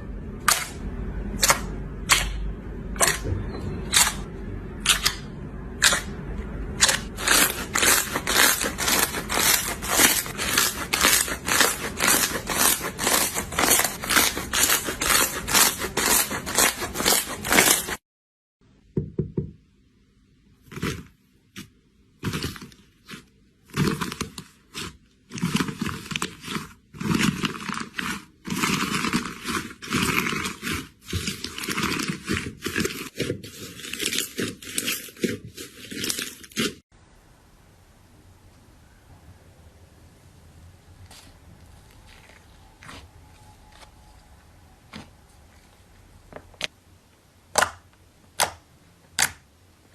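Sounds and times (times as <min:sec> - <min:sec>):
slime squelching: 0:05.8 - 0:18.0, 0:20.6 - 0:36.9, 0:41.0 - 0:44.0.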